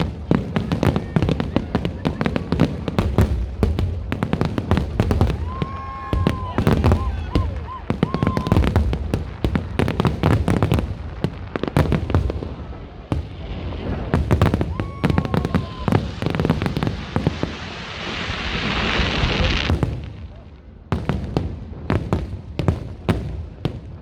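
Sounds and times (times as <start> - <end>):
fireworks bangs and cracks: 0.0 - 24.0
firework hiss: 0.5 - 20.3
firework whistle: 13.8 - 19.8.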